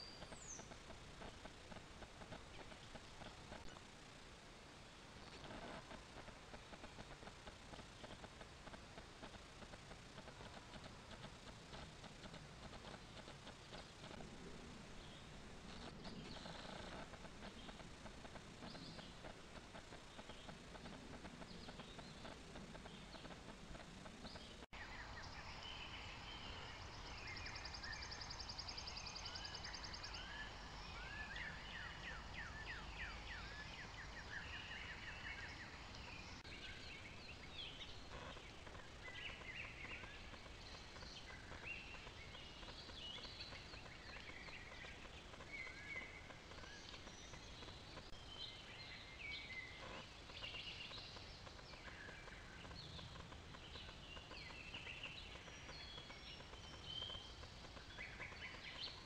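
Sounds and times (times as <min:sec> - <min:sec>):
small birds chirping and trilling: 0:00.0 - 0:59.0
steady background hiss: 0:00.0 - 0:59.0.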